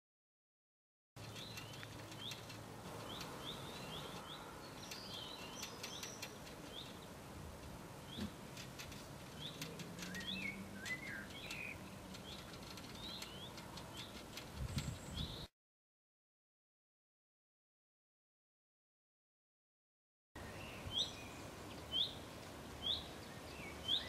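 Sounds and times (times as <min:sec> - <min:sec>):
small birds chirping: 0:01.2 - 0:15.5, 0:20.4 - 0:24.0
other bird calls: 0:08.0 - 0:15.5.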